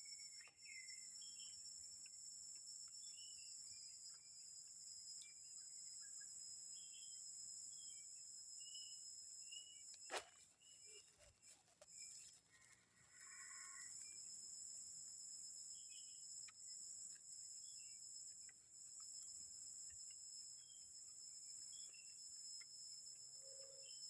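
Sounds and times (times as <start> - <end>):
bird chirps: 0.0 - 2.1, 5.2 - 12.4
insects droning: 0.0 - 24.0.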